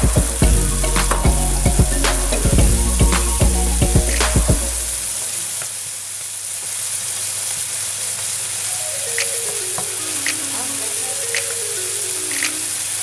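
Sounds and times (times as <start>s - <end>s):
vegetables sizzling in hot oil: 4.7s - 11.4s.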